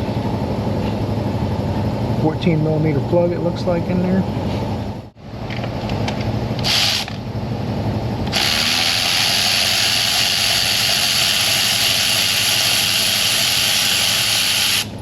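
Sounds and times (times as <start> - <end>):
cordless ratchet spinning: 8.3 - 14.9.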